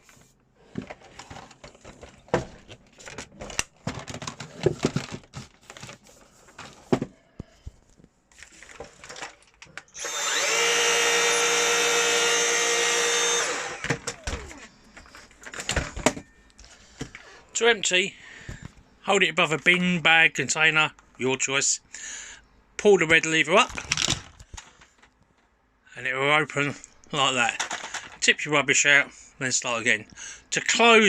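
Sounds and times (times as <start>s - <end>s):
vacuum motor whine: 10.0s - 15.1s.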